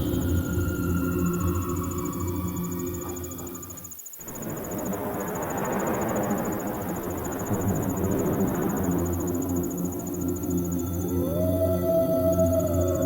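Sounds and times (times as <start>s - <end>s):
crickets chirping: 0.0s - 13.0s
low drone tones: 0.0s - 13.0s
loud rushing wind: 4.2s - 10.9s.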